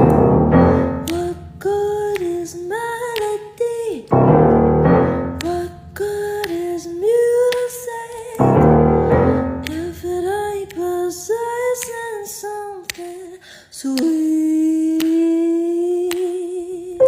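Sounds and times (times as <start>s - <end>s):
electric keyboard chords: 0.0s - 2.2s, 4.1s - 6.5s, 8.4s - 10.5s
woman singing: 0.0s - 17.0s.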